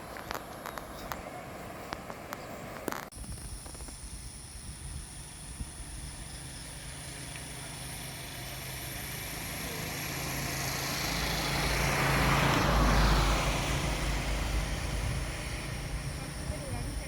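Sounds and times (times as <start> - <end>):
vehicle passing by: 0.0 - 2.9, 6.3 - 17.0.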